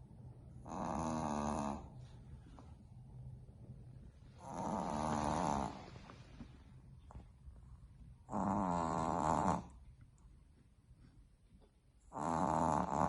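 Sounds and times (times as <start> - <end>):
puppy snoring: 0.6 - 2.1, 4.3 - 6.5, 8.2 - 9.8, 12.0 - 13.0
quiet breathing: 1.4 - 7.9.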